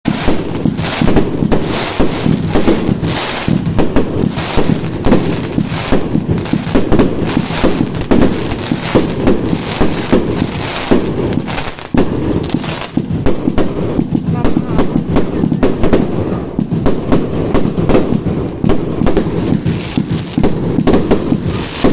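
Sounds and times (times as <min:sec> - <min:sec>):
fireworks bangs and crackles: 0:00.0 - 0:21.9.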